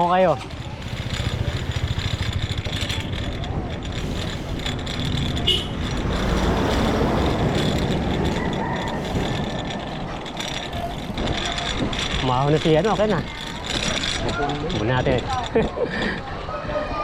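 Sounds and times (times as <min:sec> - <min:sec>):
vehicle passing on road: 0:00.0 - 0:15.5.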